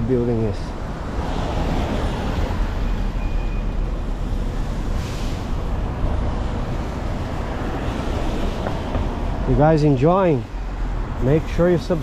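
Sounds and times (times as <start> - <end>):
city street traffic rumble: 0.0 - 12.0
passing vehicle hiss: 1.2 - 9.0.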